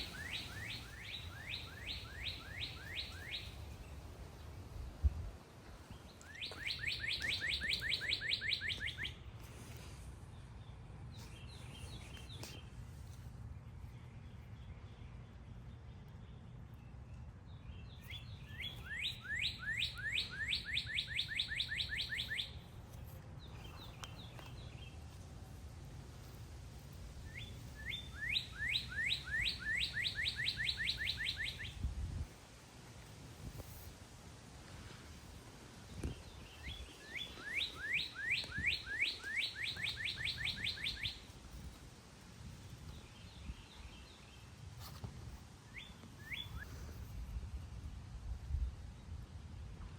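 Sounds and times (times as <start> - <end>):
faint bird calls: 0.0 - 3.8, 6.2 - 10.1, 36.0 - 41.4
songbird whistling song: 0.0 - 3.8, 6.0 - 9.3, 17.5 - 22.7, 27.3 - 32.2, 35.9 - 41.4, 45.6 - 47.0.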